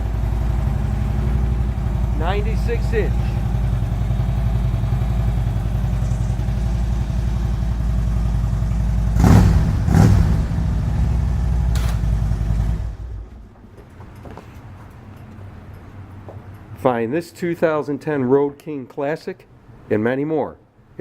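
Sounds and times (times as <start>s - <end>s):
motorcycle throttle blips: 0.0s - 13.4s
motorcycle engine idling: 0.0s - 13.5s.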